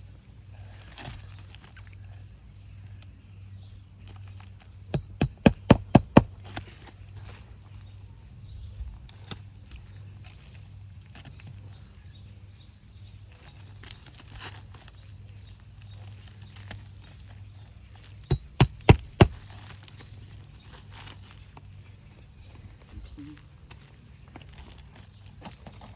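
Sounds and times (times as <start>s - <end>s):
hammer blows on nail: 5.0s - 6.3s, 18.3s - 19.4s
shingle scraping and knocking: 5.0s - 6.8s, 18.3s - 19.8s.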